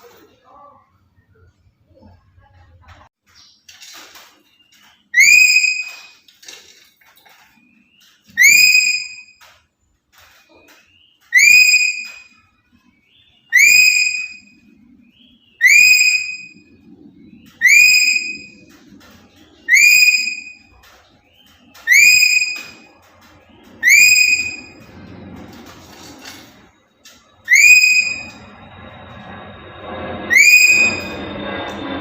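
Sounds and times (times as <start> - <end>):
parrot whistled call: 5.1 - 6.2, 8.3 - 9.4, 11.3 - 12.4, 13.2 - 16.7, 17.3 - 18.7, 19.6 - 23.0, 23.7 - 25.0, 27.4 - 32.0.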